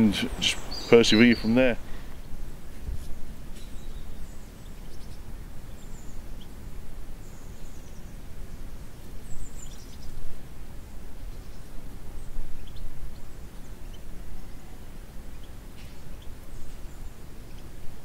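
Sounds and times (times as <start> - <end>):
bird chirps: 0.0 - 2.3, 3.5 - 6.6.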